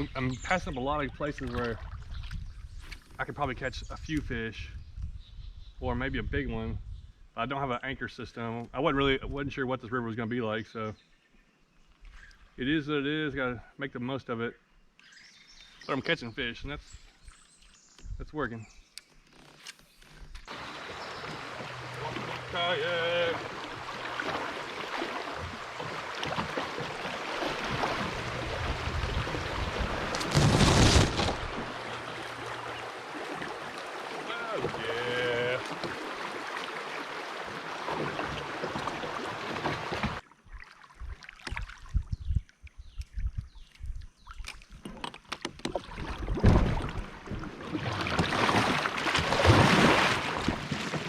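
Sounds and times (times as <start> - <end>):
river water rushing and splashing: 20.5 - 40.8, 46.6 - 51.0
kayak hull knocking on log: 23.7 - 32.1, 37.4 - 40.2
scraping against hull: 23.7 - 33.0.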